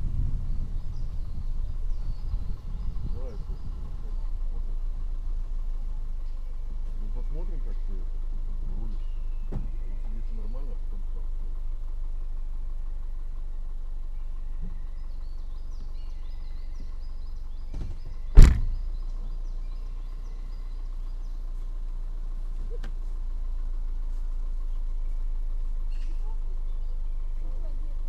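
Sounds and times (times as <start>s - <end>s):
low rumble: 0.0s - 22.7s
car door shutting: 9.5s - 9.8s, 17.7s - 18.8s.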